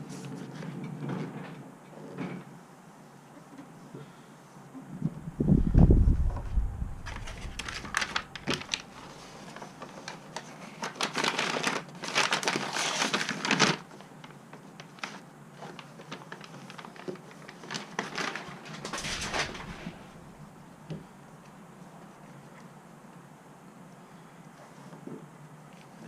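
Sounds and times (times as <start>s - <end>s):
sound-deadening sheets crinkling: 5.2s - 20.7s
paper rustling: 5.6s - 20.6s.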